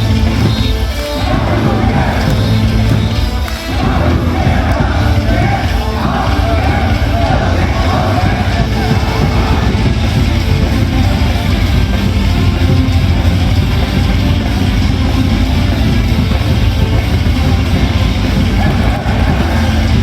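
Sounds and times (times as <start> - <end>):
rock music over sound system: 0.0 - 20.0.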